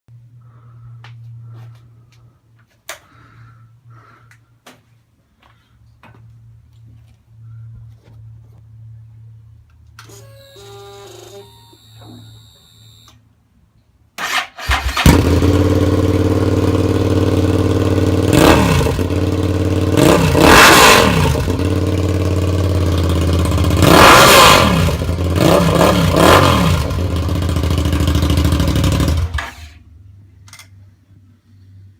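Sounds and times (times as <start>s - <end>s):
motorcycle engine idling loudly: 15.0s - 29.6s.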